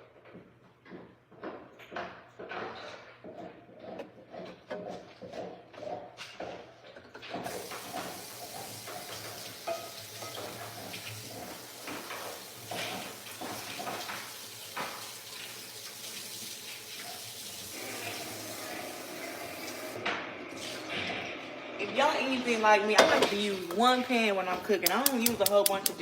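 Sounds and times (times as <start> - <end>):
steady kitchen hiss: 7.4 - 26.0
utensils clinking and knocking: 9.6 - 10.8, 24.6 - 26.0.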